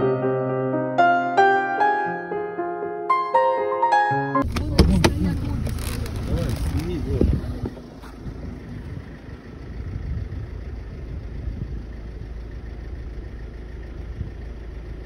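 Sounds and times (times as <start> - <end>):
road noise: 4.4 - 15.0
vehicle engine running: 4.4 - 15.0.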